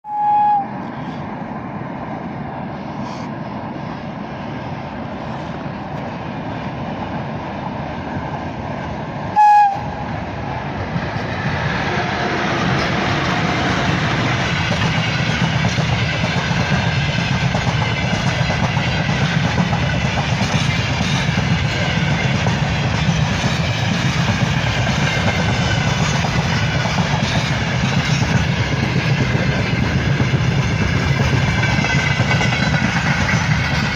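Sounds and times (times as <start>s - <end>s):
locomotive horn blast: 0.1s - 0.8s, 9.4s - 10.0s
train rumbling and clattering: 0.1s - 33.9s.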